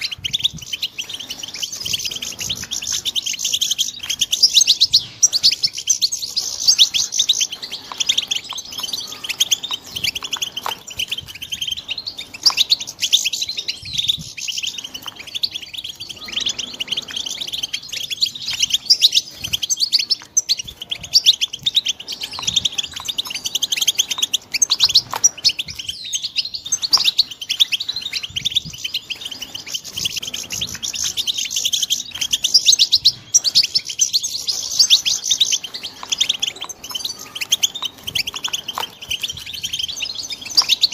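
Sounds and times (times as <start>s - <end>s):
goldfinches twittering and chirping: 0.0s - 40.9s.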